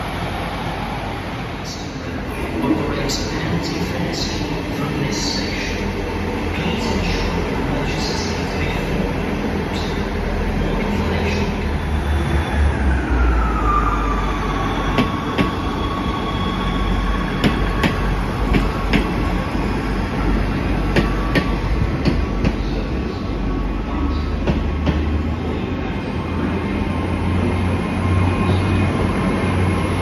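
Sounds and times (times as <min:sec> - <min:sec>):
train whine: 0:00.0 - 0:30.0.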